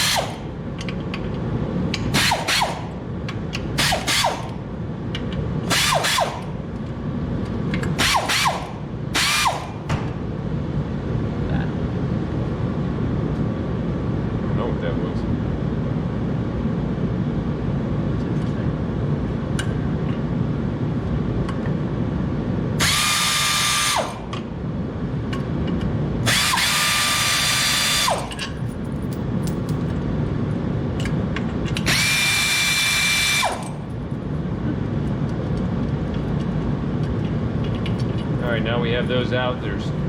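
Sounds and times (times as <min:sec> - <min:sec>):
power drill motor whine: 0:00.0 - 0:00.5, 0:02.2 - 0:03.0, 0:03.8 - 0:04.6, 0:05.7 - 0:06.5, 0:08.0 - 0:09.9, 0:22.8 - 0:24.3, 0:26.2 - 0:28.4, 0:31.8 - 0:33.9.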